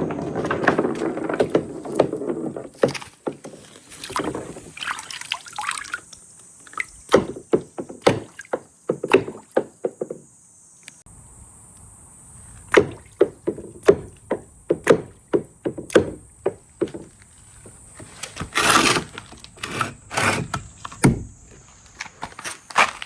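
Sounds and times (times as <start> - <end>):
marbles rolling rumble: 0.0 - 2.8.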